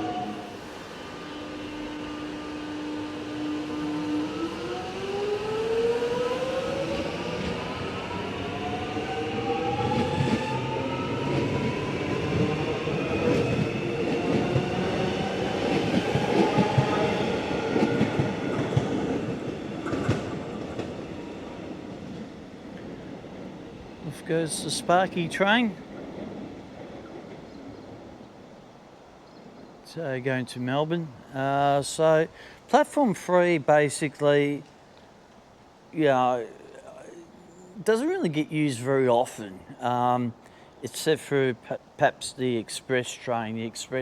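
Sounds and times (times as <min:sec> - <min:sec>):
electric train motor whine: 0:00.0 - 0:17.5.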